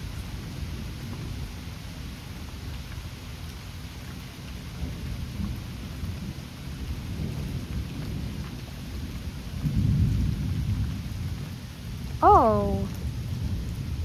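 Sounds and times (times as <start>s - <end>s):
steady rain: 0.0s - 14.0s
rolling thunder: 4.8s - 12.2s, 12.9s - 14.0s.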